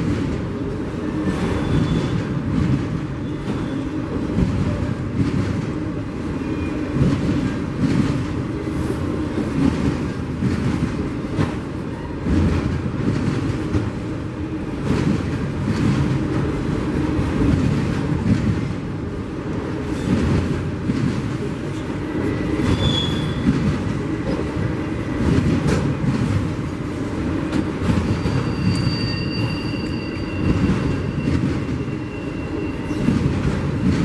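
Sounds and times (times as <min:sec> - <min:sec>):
train rumbling: 0:00.0 - 0:34.0
train wheels clattering: 0:19.8 - 0:34.0.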